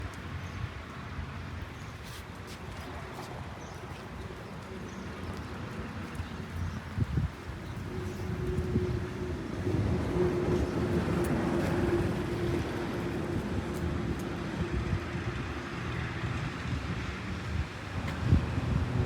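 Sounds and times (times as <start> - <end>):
wind noise: 6.6 - 19.0.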